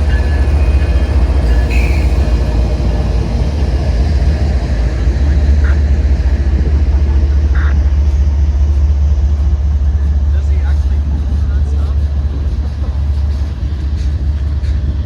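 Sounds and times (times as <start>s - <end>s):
train wheels squeaking: 0.0s - 5.6s
freight train rumbling past: 0.0s - 15.0s.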